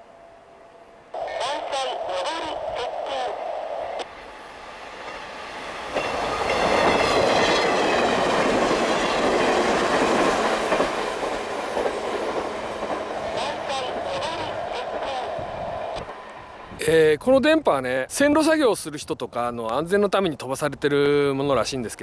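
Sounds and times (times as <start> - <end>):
train whine falling in pitch: 0.0 - 16.8
train wheels clattering over rail joints: 5.8 - 13.5.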